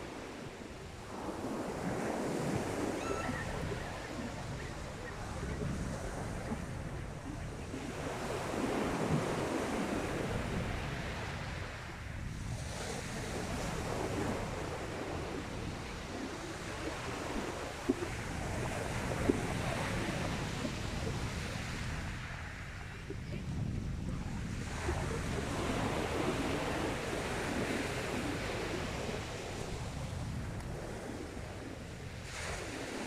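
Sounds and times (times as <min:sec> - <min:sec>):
sea waves washing onto beach: 0:00.0 - 0:33.0
wind on microphone: 0:00.0 - 0:33.0.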